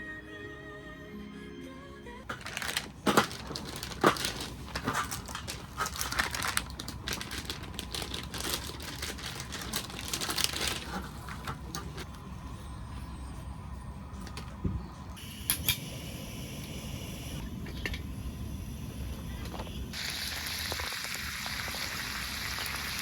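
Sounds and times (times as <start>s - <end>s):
crackling and crinkling clicks: 2.3s - 12.2s.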